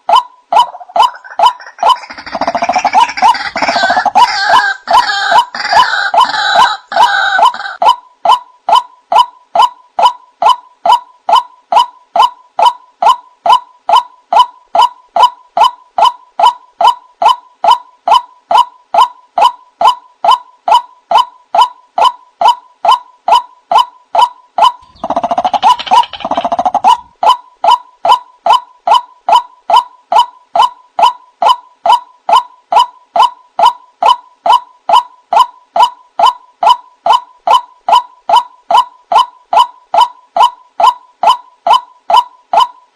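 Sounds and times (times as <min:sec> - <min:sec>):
waterhen calling: 0:00.6 - 0:07.8, 0:24.8 - 0:27.1.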